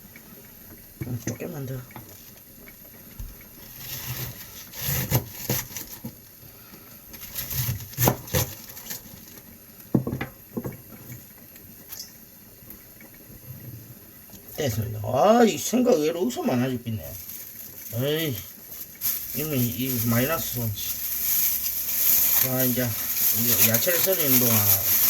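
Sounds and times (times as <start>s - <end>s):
knife slicing cabbage on board: 4.0s - 5.8s, 7.5s - 8.7s.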